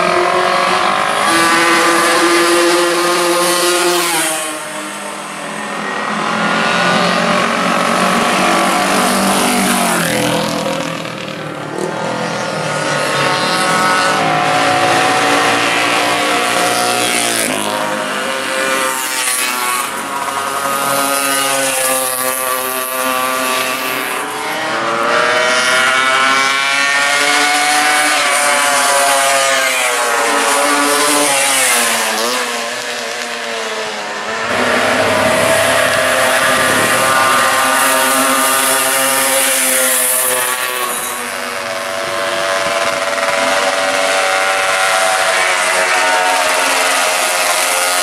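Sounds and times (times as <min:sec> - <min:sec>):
racing motorcycle engine revving: 0:00.0 - 0:48.0.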